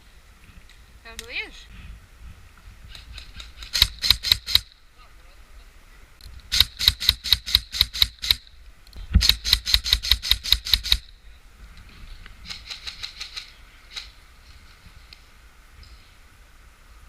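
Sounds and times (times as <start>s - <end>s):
airsoft gun firing: 3.5s - 4.7s, 6.5s - 8.4s, 9.2s - 11.1s.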